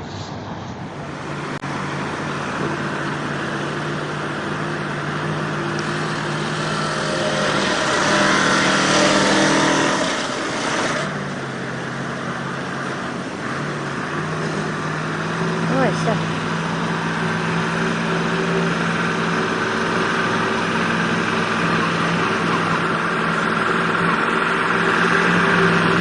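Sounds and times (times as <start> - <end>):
vehicle engine running and revving: 0.0 - 26.0.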